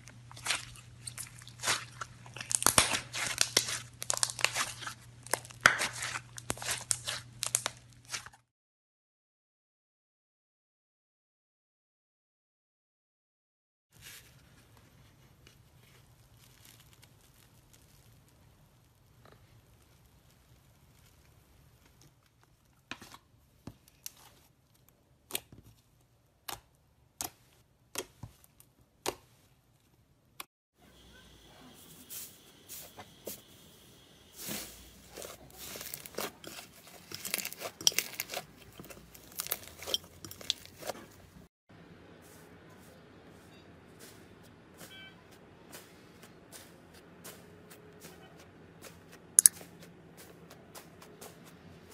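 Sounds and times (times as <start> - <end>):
slime crackling and popping: 0.1 - 8.4, 16.0 - 22.7, 34.4 - 41.0.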